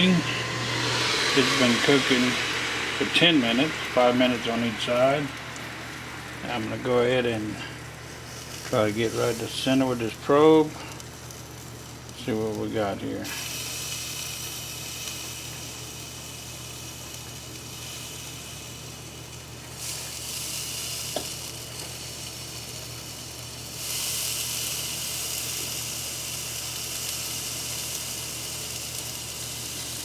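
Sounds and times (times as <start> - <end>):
steady low hum: 0.0 - 23.8
meat sizzling on a grill: 0.0 - 30.0.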